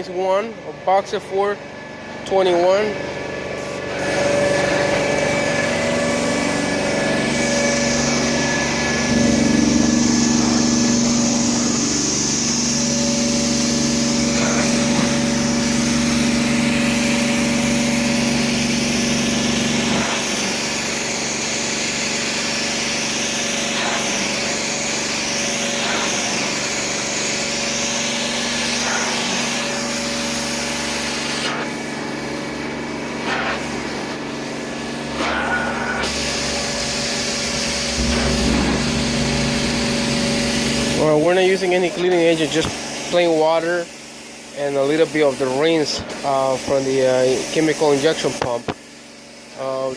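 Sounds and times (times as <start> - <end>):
carpet extractor engine humming: 2.9 - 41.2
suction air rushing: 3.4 - 32.4, 33.1 - 43.2.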